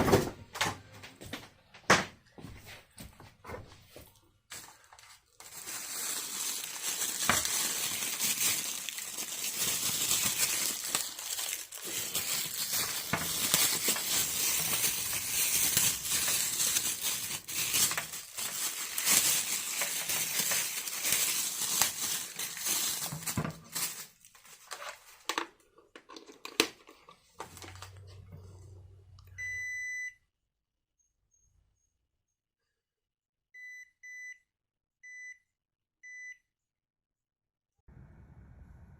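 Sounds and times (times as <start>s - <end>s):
plastic packaging crinkling: 4.5s - 28.0s
short electronic beep: 29.3s - 30.2s
low hum: 37.9s - 38.9s.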